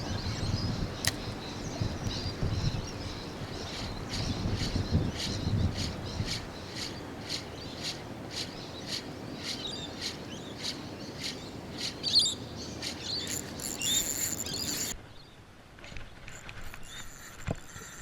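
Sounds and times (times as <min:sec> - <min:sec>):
birds chirping: 0:00.0 - 0:15.4
fishing reel ticking: 0:13.2 - 0:14.9.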